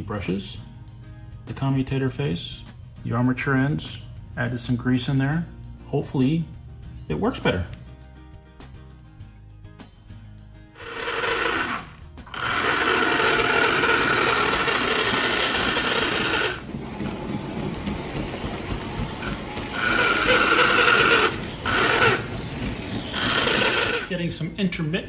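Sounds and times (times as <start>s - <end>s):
toy train motor whirring: 10.8s - 24.2s.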